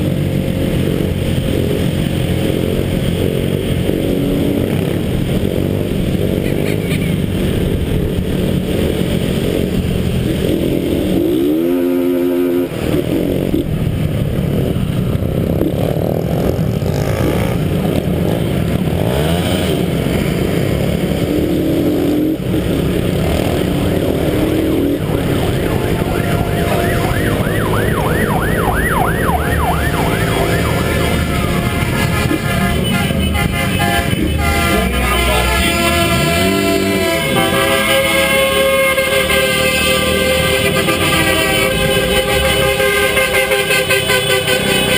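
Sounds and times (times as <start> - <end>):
motorcycle engines revving: 0.0 - 44.9
fast warbling tone: 23.9 - 32.4.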